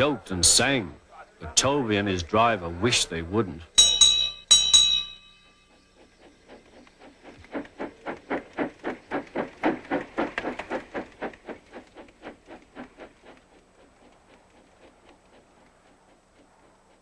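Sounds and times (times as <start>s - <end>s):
steam tram engine chuffing: 3.8s - 17.0s.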